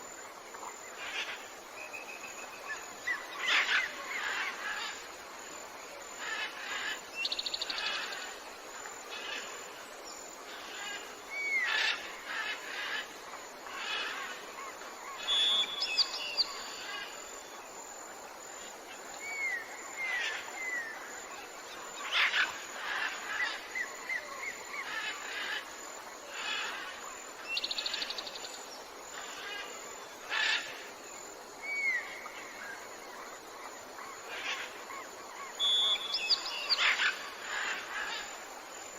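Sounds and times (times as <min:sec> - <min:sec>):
forest birds chirping: 0:00.0 - 0:38.9.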